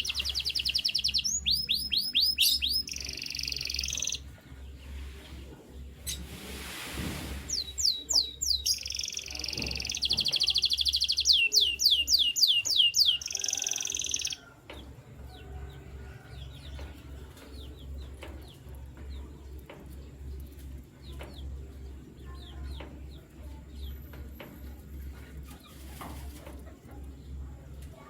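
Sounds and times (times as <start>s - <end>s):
bird chirps: 0.0s - 4.3s, 7.5s - 14.9s
canary singing trill: 0.0s - 4.9s, 7.5s - 25.9s.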